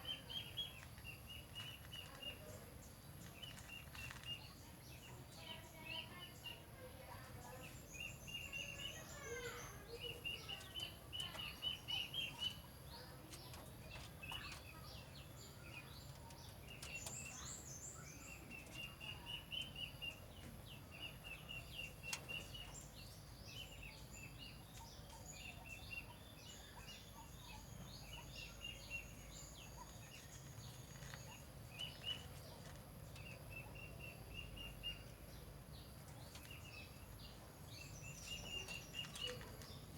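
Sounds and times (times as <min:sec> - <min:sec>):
birds calling repeated notes: 0:05.1 - 0:39.9.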